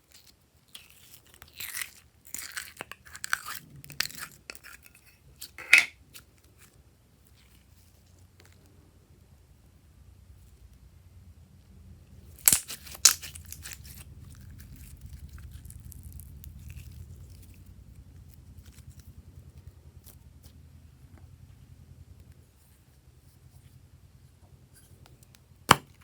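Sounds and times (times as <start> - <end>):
sharp crinkling crackles: 12.4 - 19.7.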